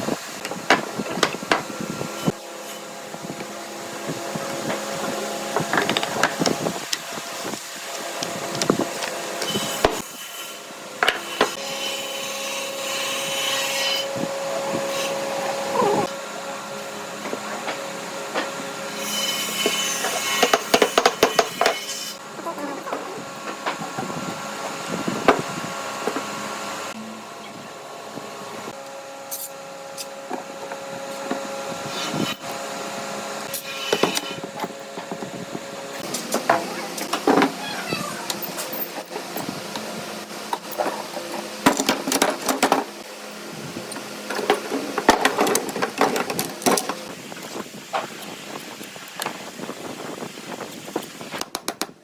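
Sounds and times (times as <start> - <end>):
wood and hand tools clattering: 43.9 - 47.1.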